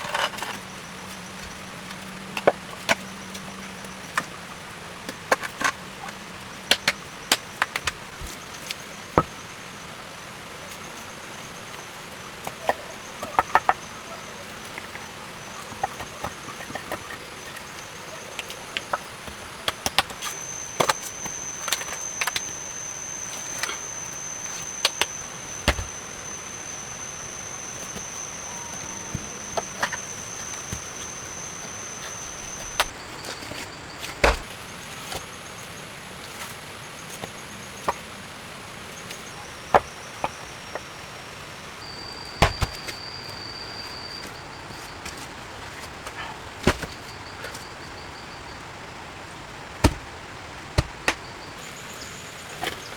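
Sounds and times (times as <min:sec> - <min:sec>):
wood being chopped: 0:06.6 - 0:09.4, 0:12.4 - 0:35.2, 0:42.4 - 0:43.2, 0:46.6 - 0:47.6, 0:49.8 - 0:51.4.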